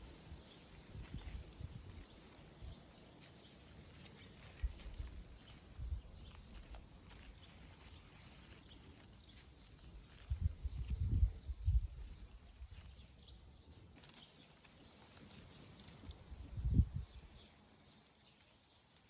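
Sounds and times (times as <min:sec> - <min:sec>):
wind thumping on microphone: 0:10.2 - 0:12.2, 0:16.5 - 0:17.2.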